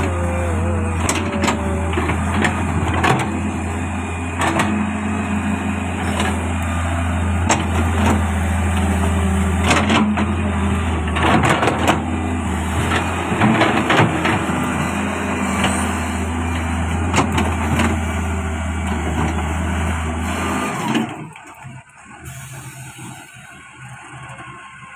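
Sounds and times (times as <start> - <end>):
excavator diesel engine running: 0.0 - 24.9
machine knocks and clanks: 11.0 - 14.7.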